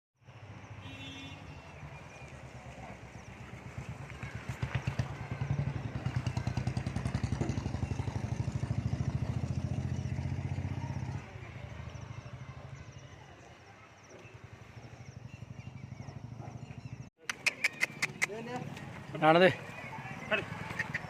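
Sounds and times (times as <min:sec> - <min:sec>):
vehicle engine running: 0:02.2 - 0:17.1.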